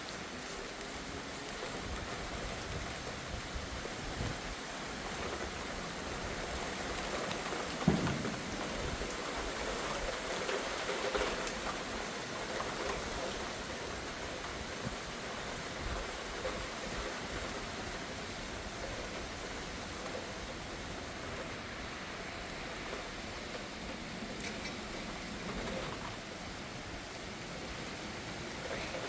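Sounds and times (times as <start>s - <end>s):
steady rain falling: 0.0s - 29.0s
short thump: 7.8s - 8.9s.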